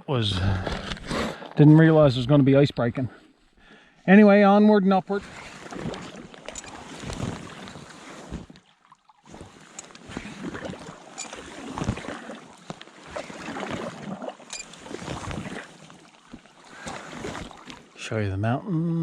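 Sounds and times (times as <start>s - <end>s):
paddle splashing in water: 5.1s - 18.0s.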